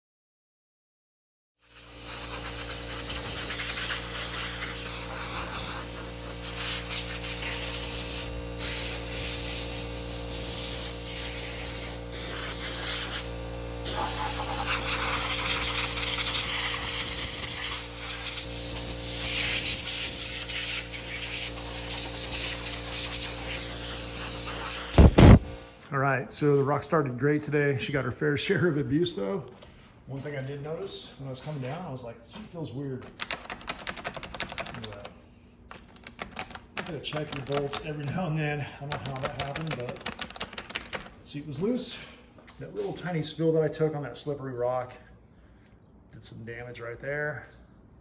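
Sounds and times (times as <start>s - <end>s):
pressure washer spraying water: 1.6s - 25.6s
motor hum: 1.7s - 25.9s.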